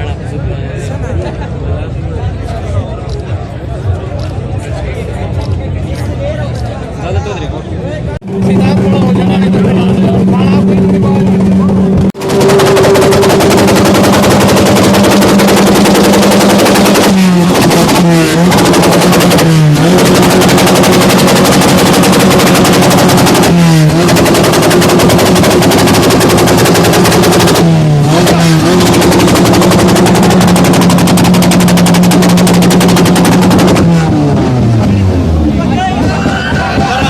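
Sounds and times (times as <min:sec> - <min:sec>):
car engine revving loud exhaust: 0:08.2 - 0:35.6.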